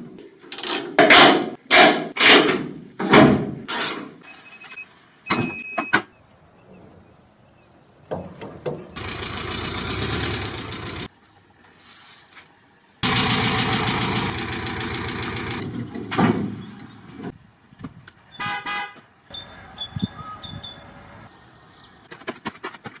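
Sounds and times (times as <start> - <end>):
car horn honk: 18.4 - 19.0.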